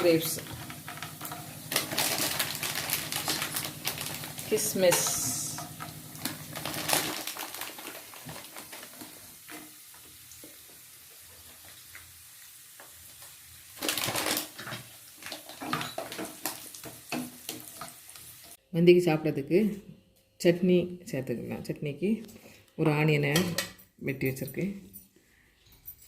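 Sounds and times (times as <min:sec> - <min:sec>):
raisins sizzling in a pan: 0:00.0 - 0:18.6.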